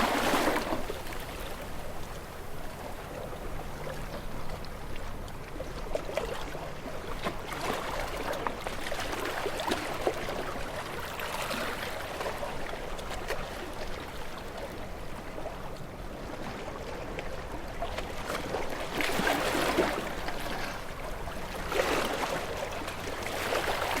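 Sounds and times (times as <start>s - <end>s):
sea waves washing in: 0.0s - 3.0s.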